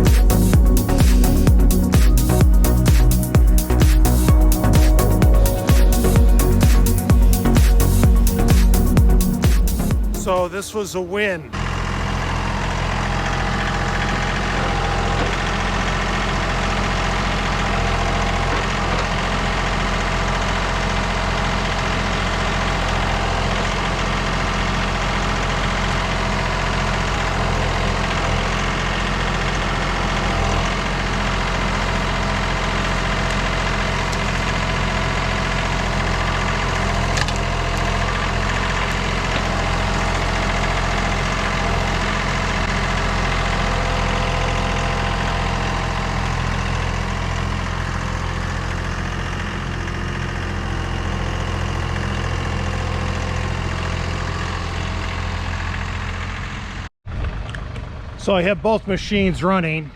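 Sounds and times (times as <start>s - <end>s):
diesel engine running steadily: 0.0s - 59.9s.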